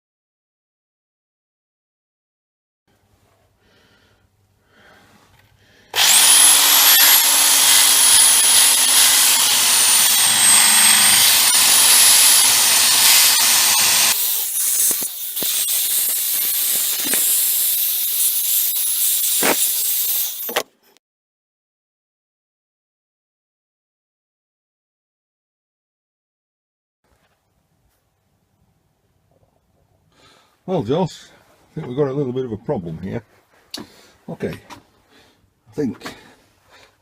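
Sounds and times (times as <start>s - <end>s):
power tool motor whining: 6.0s - 20.7s.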